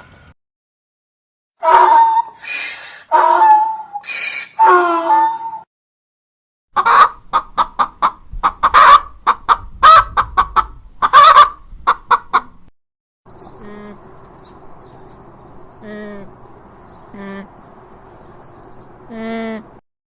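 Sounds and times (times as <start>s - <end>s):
chicken clucking: 6.8s - 12.6s
high bird chirps: 13.3s - 15.8s.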